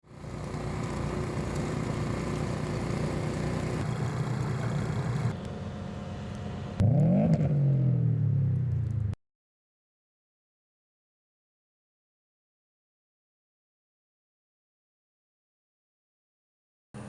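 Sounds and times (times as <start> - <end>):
vehicle engines running: 0.0 - 9.2
loud engine revving: 6.8 - 8.1.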